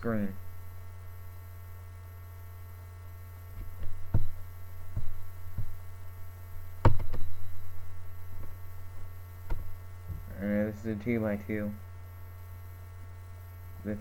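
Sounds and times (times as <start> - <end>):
faint high whining tones: 0.0 - 14.0
low electrical hum: 0.0 - 14.0
knocks or taps: 6.8 - 7.2.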